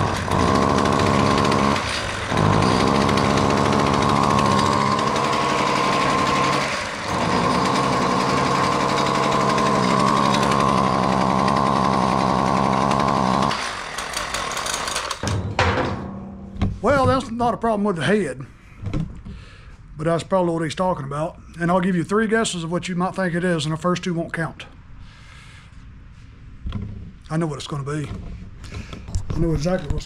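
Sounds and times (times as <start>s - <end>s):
string trimmer engine running: 0.0s - 15.2s.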